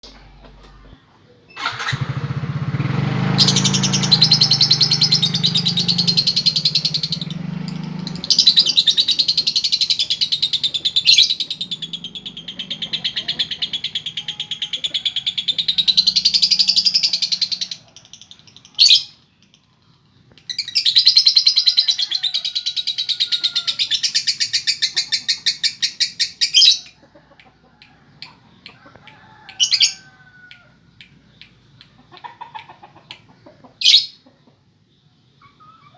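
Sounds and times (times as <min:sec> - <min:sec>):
short sharp bird calls: 0:03.2 - 0:19.2, 0:20.4 - 0:34.3
lovebird chattering trills: 0:03.4 - 0:19.6, 0:20.5 - 0:27.0, 0:28.2 - 0:34.2.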